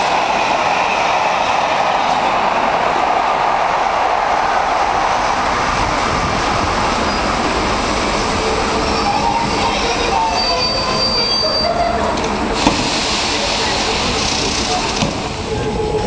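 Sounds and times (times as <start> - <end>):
train rumbling: 0.0 - 16.0
brake squeals: 8.8 - 12.1.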